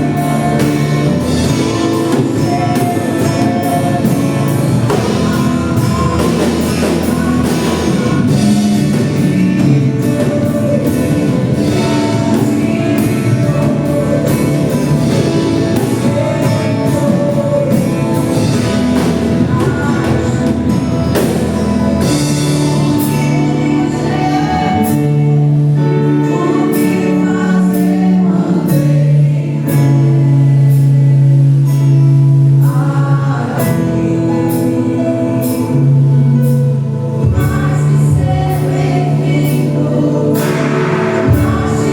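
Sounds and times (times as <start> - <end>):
band with guitar and drums: 0.0 - 41.9
choir singing gospel: 0.0 - 41.9.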